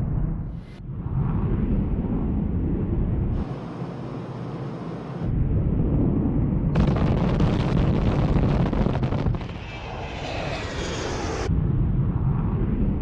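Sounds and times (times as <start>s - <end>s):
jet engines roaring: 6.8s - 11.6s.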